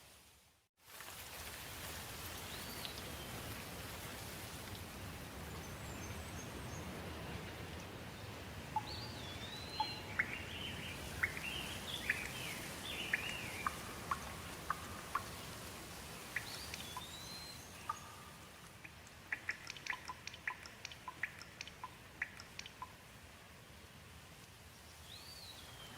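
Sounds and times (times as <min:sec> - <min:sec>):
steady rain: 0:00.0 - 0:25.9
birds chirping: 0:05.5 - 0:23.0.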